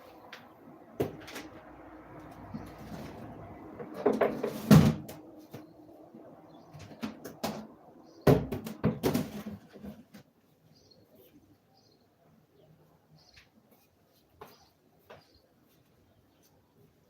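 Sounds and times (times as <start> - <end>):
sharp knocks and bumps: 6.8 - 10.2.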